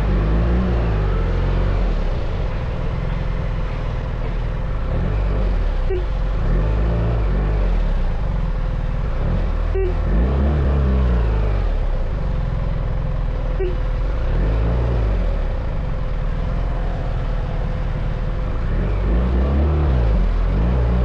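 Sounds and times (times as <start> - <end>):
motorcycle engine running: 7.2 - 21.0.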